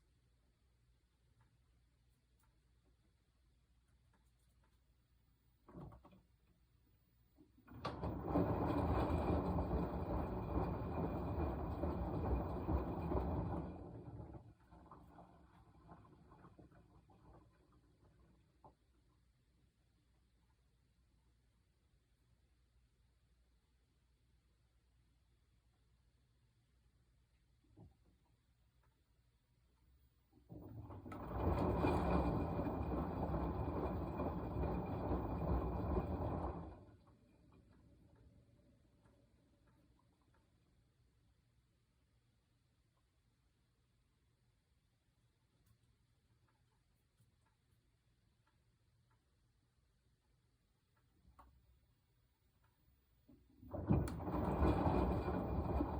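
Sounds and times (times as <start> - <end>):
washing machine running: 7.4 - 19.1, 30.3 - 41.4, 53.3 - 55.9.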